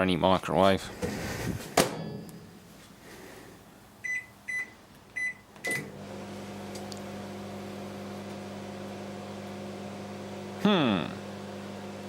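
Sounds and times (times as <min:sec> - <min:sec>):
microwave keypad beeps: 0:04.0 - 0:05.9
microwave oven humming: 0:04.0 - 0:12.0.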